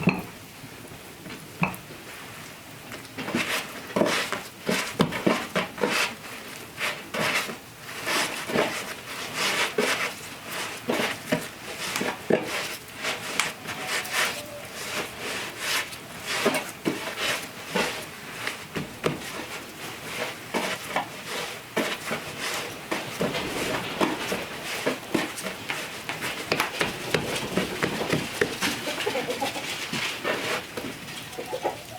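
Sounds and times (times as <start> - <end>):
wooden utensils knocking and scraping: 6.9 - 31.2.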